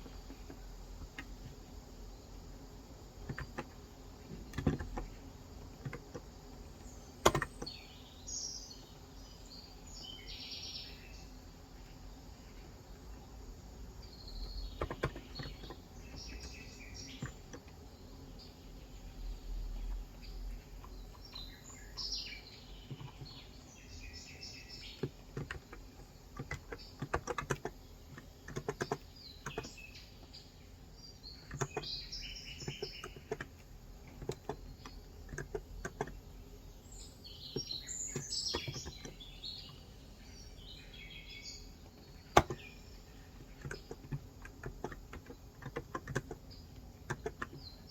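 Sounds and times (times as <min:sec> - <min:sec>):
birds chirping: 0:00.0 - 0:47.9
keyboard typing: 0:03.2 - 0:06.3, 0:07.2 - 0:07.7, 0:14.6 - 0:17.8, 0:24.8 - 0:29.8, 0:31.4 - 0:36.2, 0:41.9 - 0:42.7, 0:43.3 - 0:47.9.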